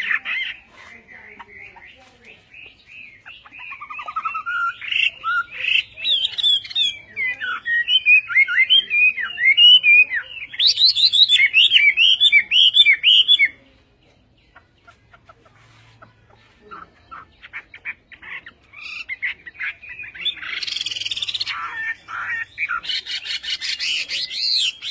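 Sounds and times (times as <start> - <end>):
bird singing whistled song: 2.5 - 13.6, 17.1 - 24.9.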